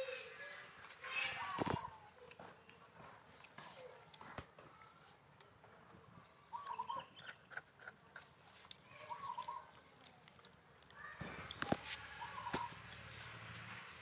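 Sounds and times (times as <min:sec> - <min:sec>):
bird chirping: 0:06.1 - 0:07.6, 0:08.9 - 0:09.7, 0:11.0 - 0:14.0
faint clicks: 0:08.2 - 0:13.1.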